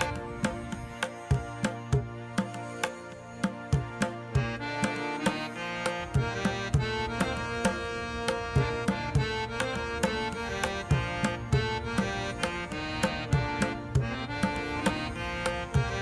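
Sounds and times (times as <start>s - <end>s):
hand drum beat: 0.0s - 16.0s.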